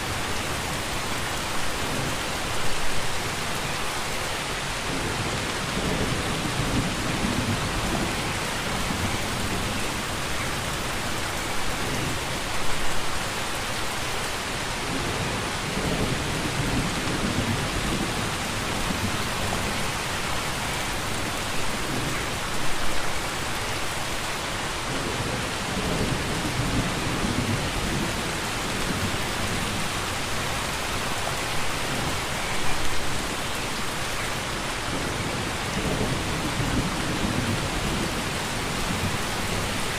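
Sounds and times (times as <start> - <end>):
steady rain: 0.0 - 39.9
thunder rumbles: 4.8 - 10.8, 14.8 - 22.5, 24.9 - 34.0, 34.9 - 39.9.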